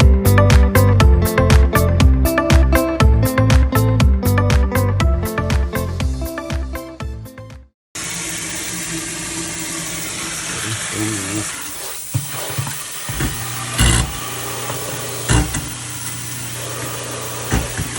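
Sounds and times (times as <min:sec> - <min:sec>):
garbage disposal motor running: 0:08.0 - 0:17.9
water flowing: 0:08.0 - 0:17.9
knocks and thumps: 0:12.1 - 0:15.8, 0:17.4 - 0:17.9.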